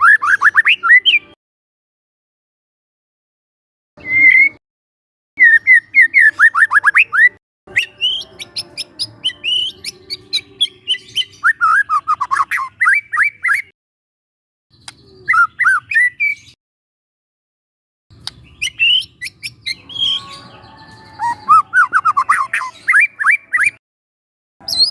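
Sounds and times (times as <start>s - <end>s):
songbird whistling and clicking: 0.0s - 1.3s, 4.0s - 4.6s, 5.4s - 13.7s, 14.7s - 16.6s, 18.2s - 20.2s, 21.0s - 23.8s, 24.7s - 24.9s.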